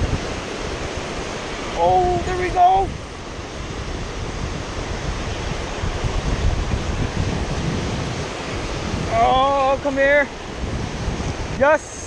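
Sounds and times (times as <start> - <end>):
wind buffeting microphone: 0.0 - 12.0
hiss of water: 4.0 - 12.0.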